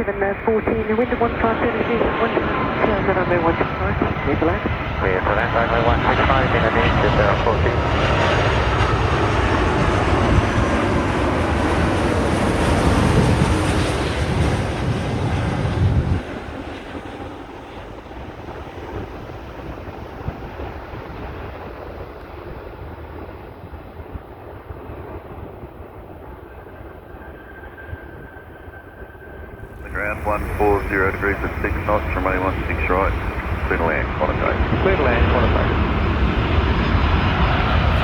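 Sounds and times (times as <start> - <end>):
jet engine rumble: 0.0 - 38.0
jet hiss: 29.6 - 34.2.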